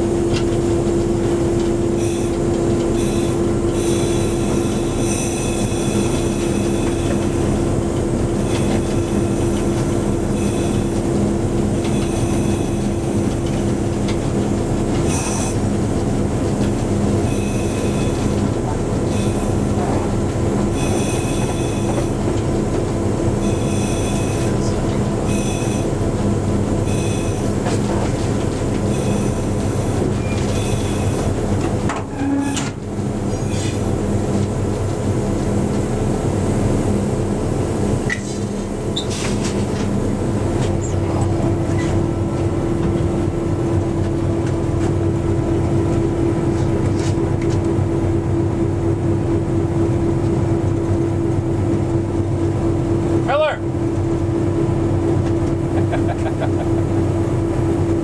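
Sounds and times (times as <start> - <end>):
train running drone: 0.0 - 58.0
high-pitched wheel squeals: 3.0 - 7.3, 11.8 - 13.0, 17.2 - 18.2, 20.7 - 22.1, 23.4 - 26.0, 26.8 - 27.5, 30.2 - 31.2, 32.0 - 33.8.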